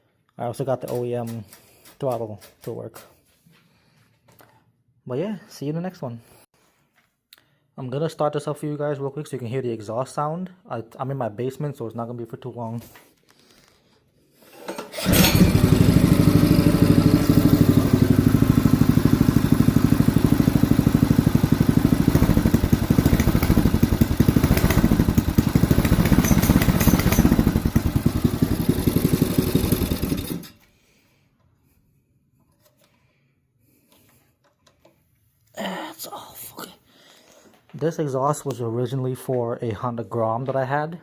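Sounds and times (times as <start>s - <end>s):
atv engine running: 15.0s - 30.5s.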